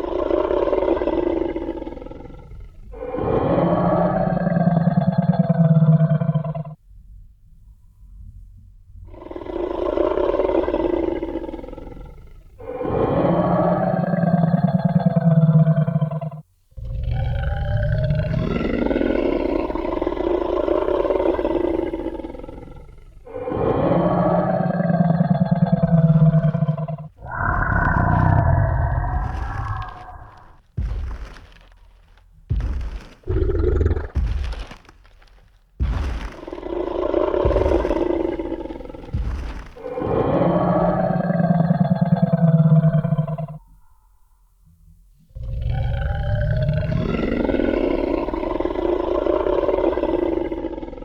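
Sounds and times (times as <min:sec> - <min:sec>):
deep dinosaur roar: 0:00.0 - 0:06.8, 0:09.1 - 0:44.0, 0:45.2 - 0:51.0
heavy stomping thuds: 0:27.2 - 0:40.9.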